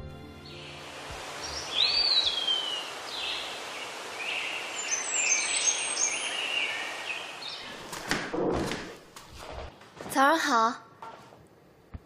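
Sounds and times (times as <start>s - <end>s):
outdoor ambient hiss: 0.2s - 12.0s
small birds chirping: 0.4s - 7.9s.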